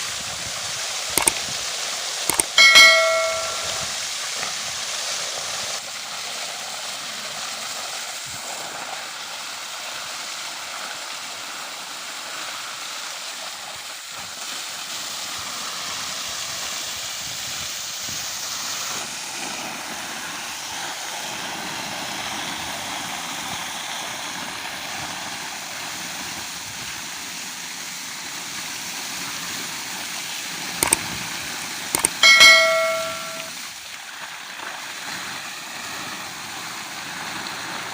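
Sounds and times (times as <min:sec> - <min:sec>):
sharp clicks: 0:01.2 - 0:01.4, 0:02.3 - 0:03.8, 0:30.8 - 0:31.1, 0:32.0 - 0:33.5
short loud ringing tone: 0:02.3 - 0:03.9, 0:32.0 - 0:33.6
running water hiss: 0:03.6 - 0:32.0.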